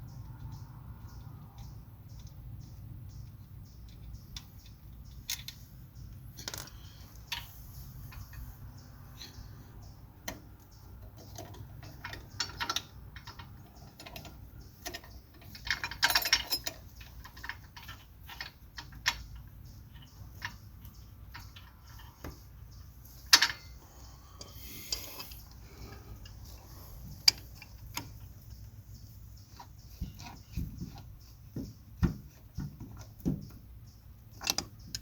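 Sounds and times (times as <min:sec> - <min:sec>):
metal tools clicking and clattering: 0:06.3 - 0:08.5, 0:11.0 - 0:23.8.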